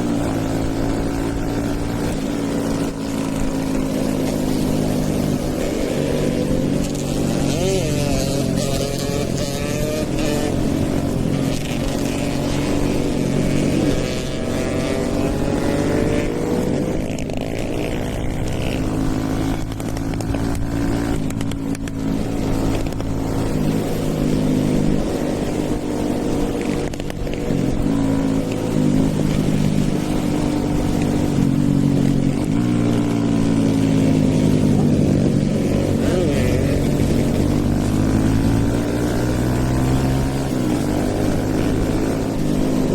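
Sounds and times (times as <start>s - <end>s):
motorcycle exhaust note: 0.0s - 42.9s.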